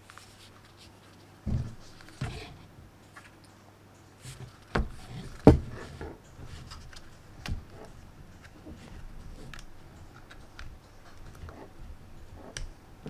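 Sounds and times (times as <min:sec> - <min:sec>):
handling knocks and clicks: 0:01.5 - 0:03.4, 0:04.3 - 0:13.0.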